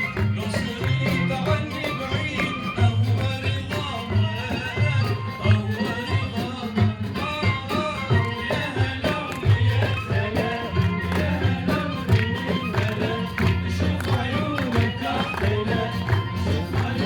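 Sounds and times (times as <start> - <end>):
live band playing folk melody: 0.0 - 17.0
bass-heavy drum beat: 8.1 - 17.0.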